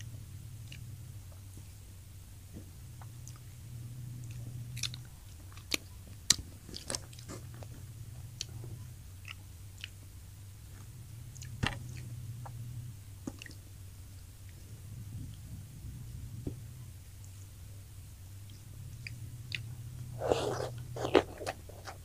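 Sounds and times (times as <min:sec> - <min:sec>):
steady low hum: 0:00.0 - 0:22.0
crunching of crispy fried fish: 0:04.8 - 0:07.7.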